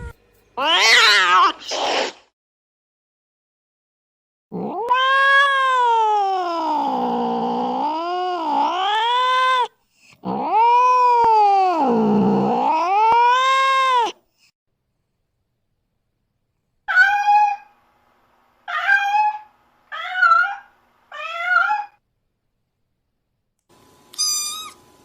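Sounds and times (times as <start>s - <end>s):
cat yowling meows: 0.6s - 1.9s, 4.6s - 9.7s, 10.3s - 14.2s, 16.9s - 17.7s, 18.7s - 22.0s, 24.2s - 24.8s.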